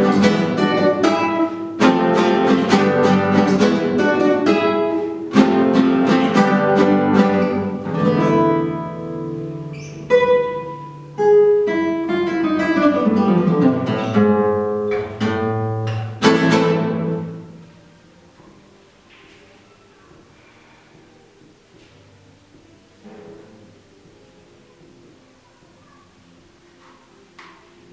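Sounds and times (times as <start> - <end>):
acoustic guitar duet: 0.0 - 19.5, 22.9 - 24.8.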